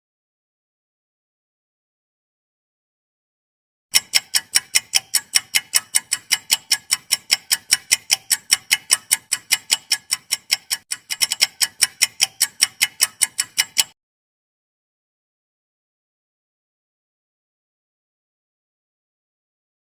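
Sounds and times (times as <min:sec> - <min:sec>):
clock ticking: 0:03.9 - 0:14.0.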